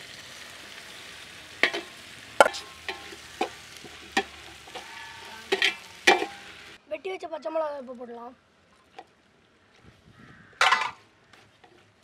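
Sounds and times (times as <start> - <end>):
onions sizzling in a pot: 0.0 - 6.8
metal knocks and scrapes on pot: 1.6 - 6.5, 10.6 - 11.0.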